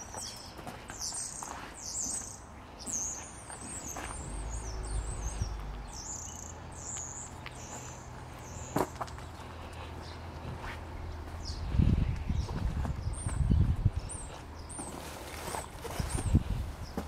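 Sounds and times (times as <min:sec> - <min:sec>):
small birds chirping: 0:00.0 - 0:17.0
low rumble: 0:04.1 - 0:08.4.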